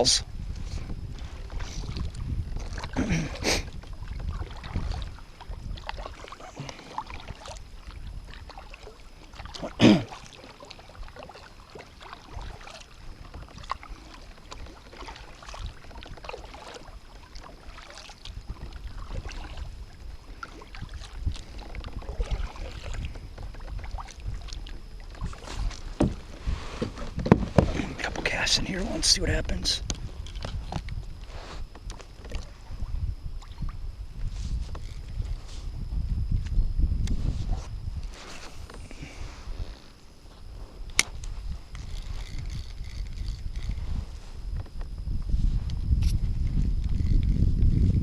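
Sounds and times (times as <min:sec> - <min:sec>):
low steady rumble: 0:00.0 - 0:48.0
water sounds: 0:01.1 - 0:35.4
kayak knocks: 0:25.2 - 0:28.3.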